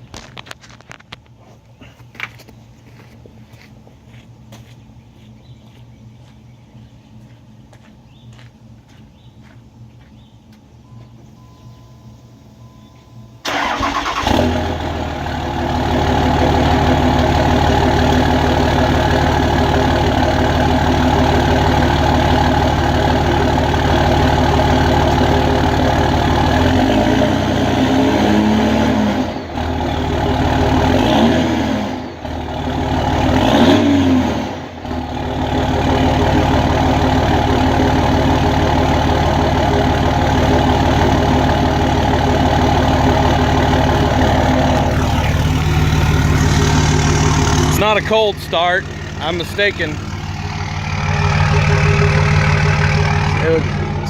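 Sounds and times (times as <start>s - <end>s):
diesel engine idling: 1.7s - 54.0s
diesel engine starting: 10.9s - 54.0s
engine revving: 13.4s - 54.0s.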